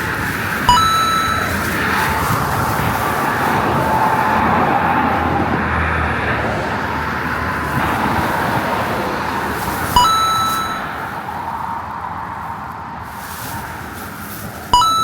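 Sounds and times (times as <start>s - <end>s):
vehicle passing: 0.0s - 15.0s
short electronic beep: 0.7s - 1.7s, 10.0s - 10.9s, 14.8s - 15.0s.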